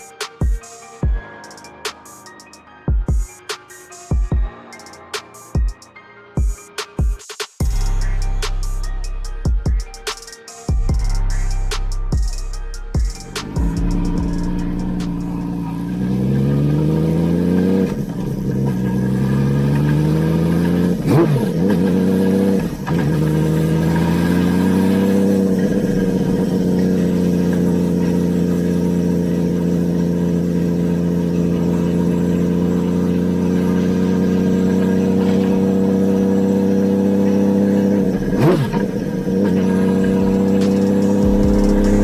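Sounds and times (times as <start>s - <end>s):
motorcycle engine revving: 12.9s - 42.0s.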